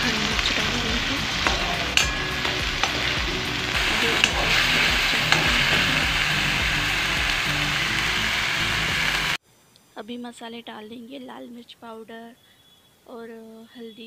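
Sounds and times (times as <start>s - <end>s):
paste sizzling in hot oil: 0.0s - 9.4s.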